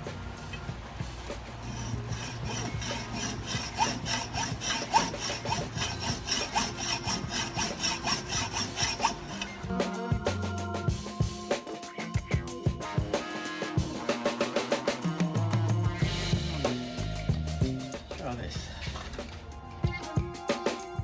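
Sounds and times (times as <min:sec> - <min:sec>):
background music: 0:00.0 - 0:21.0
hacksaw cutting metal: 0:01.6 - 0:09.7.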